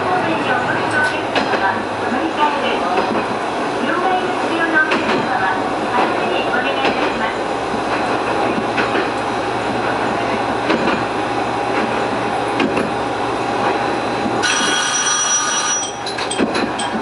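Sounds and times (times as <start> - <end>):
train rumbling on track: 0.0 - 17.0
bright ringing tone: 14.4 - 16.1.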